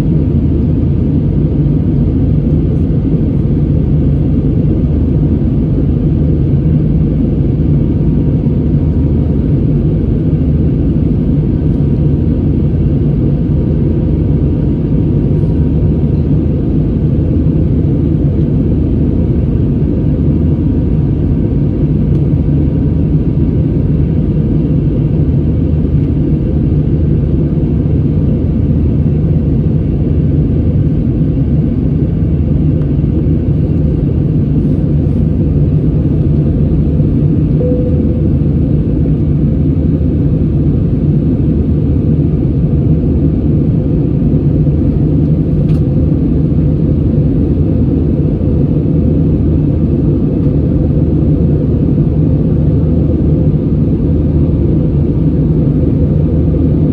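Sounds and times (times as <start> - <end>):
airliner cabin engine rumble: 0.0 - 56.9.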